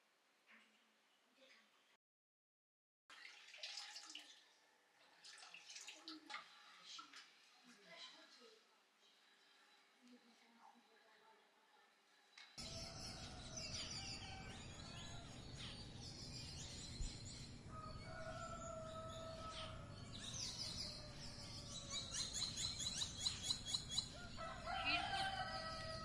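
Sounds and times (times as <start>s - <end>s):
low background noise: 3.7s - 13.6s
small birds chirping: 12.3s - 26.0s.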